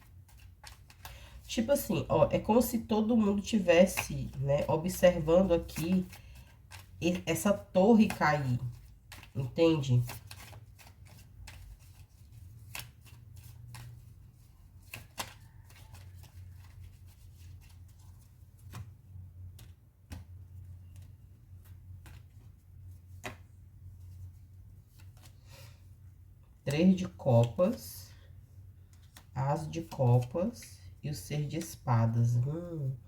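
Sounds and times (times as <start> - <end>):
cards tapping on a table: 19.5 - 20.4, 23.2 - 23.4.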